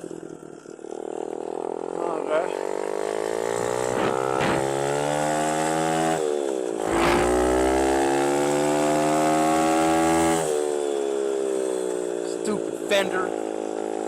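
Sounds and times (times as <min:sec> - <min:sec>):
dirt bike engine revving: 0:03.0 - 0:06.2, 0:06.8 - 0:10.6.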